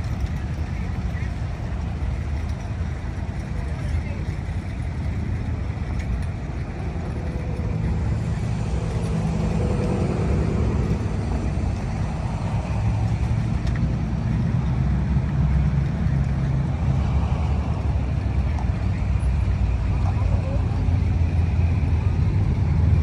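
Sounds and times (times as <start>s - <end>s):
car engines rumbling: 0.0s - 23.0s.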